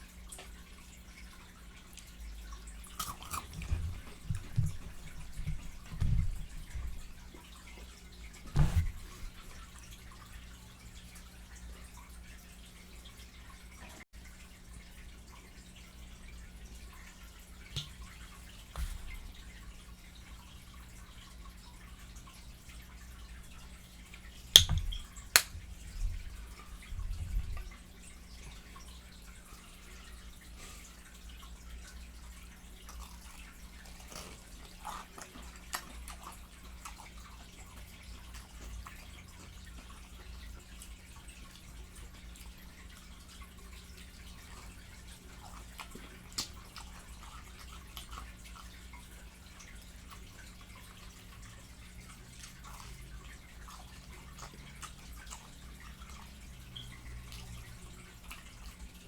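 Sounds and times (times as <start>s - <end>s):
low electrical hum: 0.0s - 59.0s
wet chewing and lip smacking: 2.8s - 7.9s, 32.8s - 40.1s, 44.4s - 51.0s, 52.2s - 58.8s.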